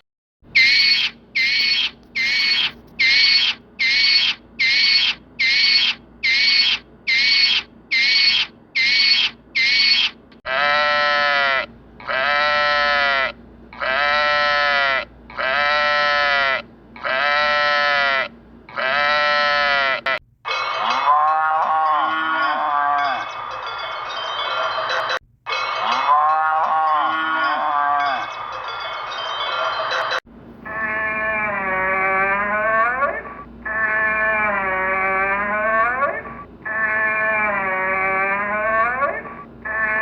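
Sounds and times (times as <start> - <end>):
short high animal calls: 0.6 - 21.2
rising and falling animal calls: 0.6 - 40.0.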